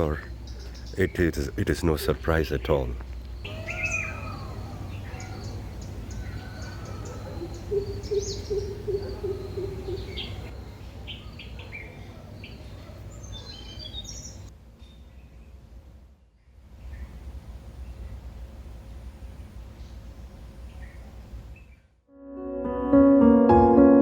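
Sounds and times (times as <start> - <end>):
low repeated bird notes: 0.0 - 14.5
birds chirping: 0.0 - 15.6.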